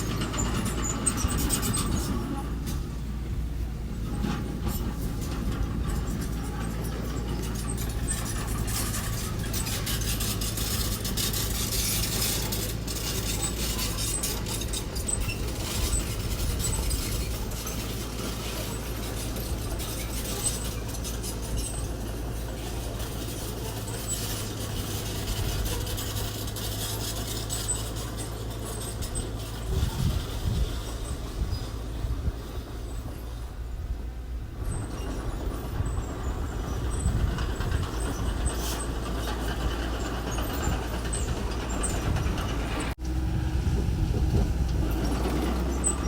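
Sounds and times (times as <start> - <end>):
low machine hum: 42.9 - 46.0.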